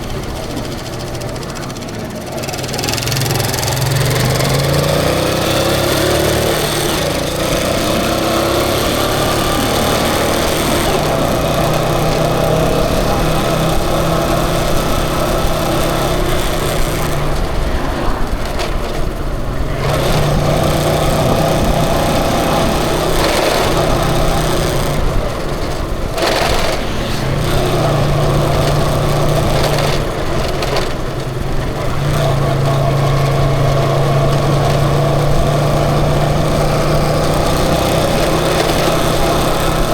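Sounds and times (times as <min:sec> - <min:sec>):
road and wind noise: 0:00.0 - 0:39.9
small vehicle engine running: 0:00.0 - 0:39.9.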